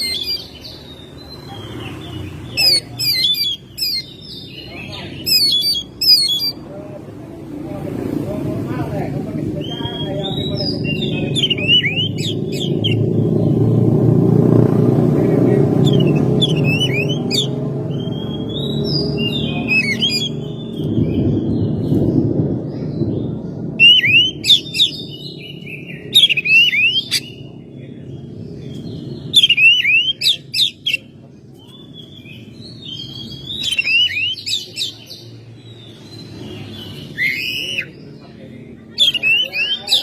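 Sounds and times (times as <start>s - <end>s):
bird singing whistled notes: 0.0s - 6.6s, 9.6s - 13.7s, 15.8s - 27.6s, 28.7s - 38.2s, 38.9s - 40.0s
low rumble: 6.7s - 26.2s.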